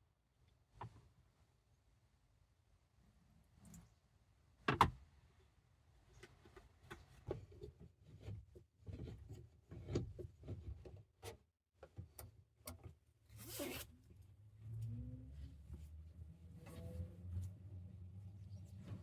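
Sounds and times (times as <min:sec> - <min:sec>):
scrape: 0:13.3 - 0:13.9.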